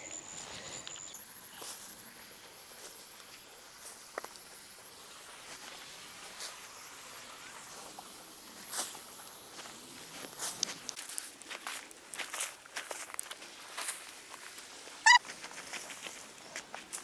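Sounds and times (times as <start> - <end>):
soft footsteps on soil: 7.7 - 17.0.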